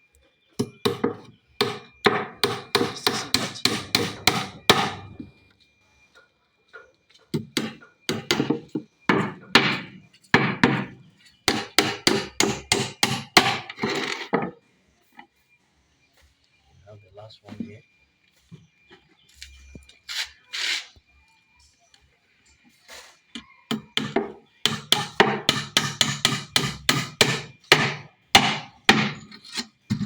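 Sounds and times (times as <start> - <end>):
hammer driving nails into boards: 0.6 - 5.1, 7.4 - 10.9, 11.5 - 14.0, 23.7 - 30.0.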